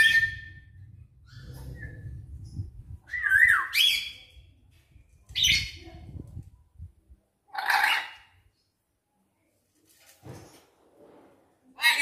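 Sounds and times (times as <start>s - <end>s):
parrot squawking: 7.5s - 8.3s.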